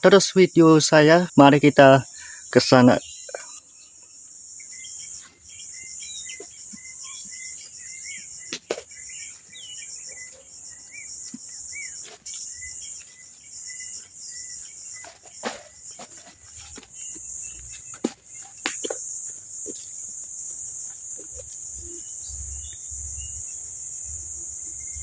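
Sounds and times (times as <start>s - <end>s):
insects chirring: 0.0s - 25.0s
birds chirping and whistling: 1.3s - 20.2s.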